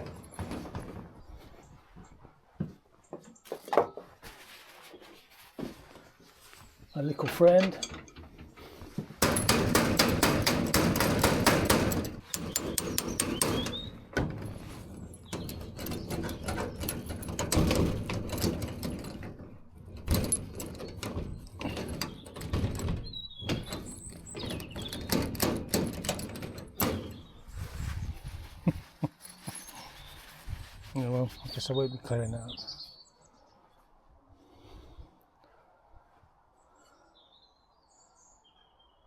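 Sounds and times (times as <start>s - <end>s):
hammer tapping on metal padlock: 9.2s - 14.3s, 15.2s - 19.4s, 20.0s - 27.2s.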